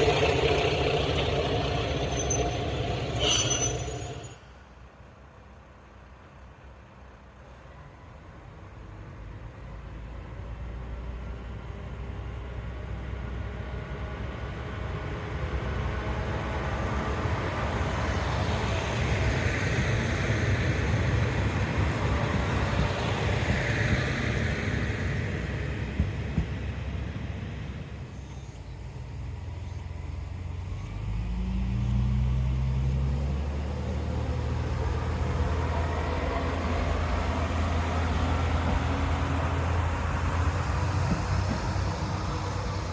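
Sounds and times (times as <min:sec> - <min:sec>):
low steady engine drone: 0:00.0 - 0:04.5, 0:16.0 - 0:42.9
diesel railcar passing: 0:00.0 - 0:42.9.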